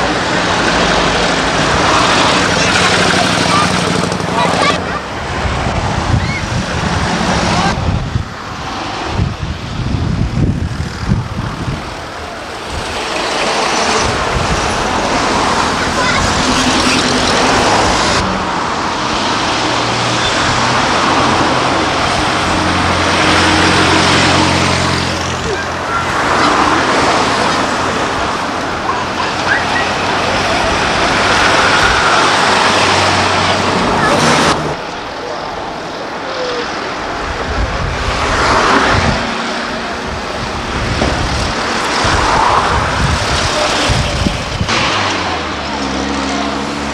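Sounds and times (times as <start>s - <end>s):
cars passing by: 0.0s - 46.9s.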